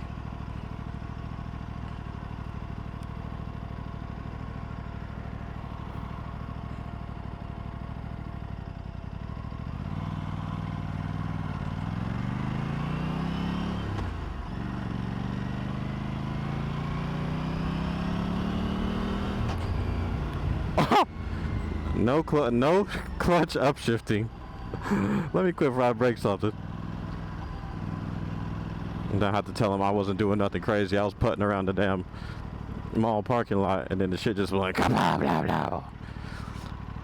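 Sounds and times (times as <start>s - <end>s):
motorcycle engine revving: 4.1s - 23.2s, 26.5s - 30.4s.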